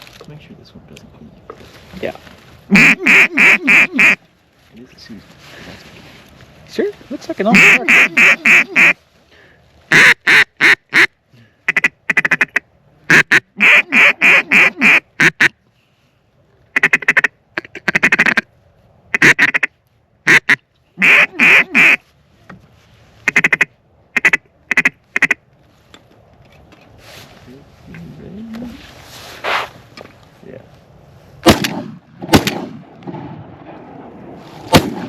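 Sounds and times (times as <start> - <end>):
duck quacking: 2.7 - 4.2, 7.5 - 9.0, 9.9 - 11.1, 11.7 - 15.6, 16.7 - 18.4, 19.1 - 22.0, 23.2 - 25.4.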